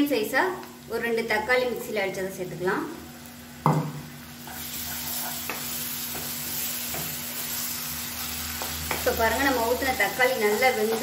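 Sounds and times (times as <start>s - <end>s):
food sizzling in hot oil: 0.0s - 11.0s
spatula scraping and tapping pan: 5.2s - 7.6s, 8.5s - 9.2s.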